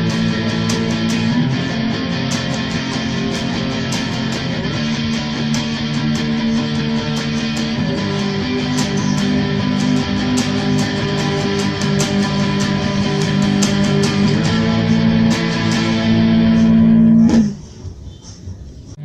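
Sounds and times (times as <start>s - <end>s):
guitar band music: 0.0s - 18.1s.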